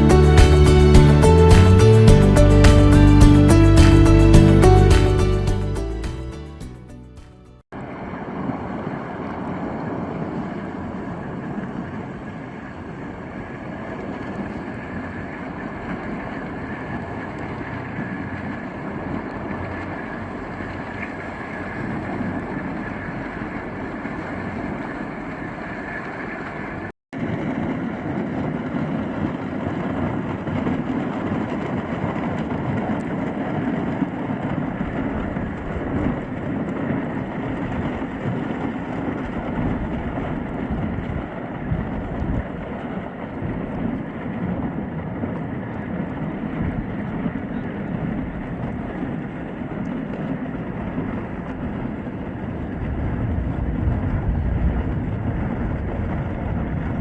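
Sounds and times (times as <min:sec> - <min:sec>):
boat hull rushing through ice: 0:07.8 - 0:57.0
wind on microphone: 0:27.2 - 0:57.0.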